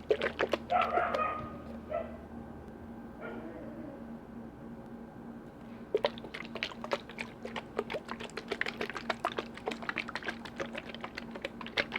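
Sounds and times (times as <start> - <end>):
rapid tapping on hard objects: 0.0 - 1.2, 6.0 - 11.9.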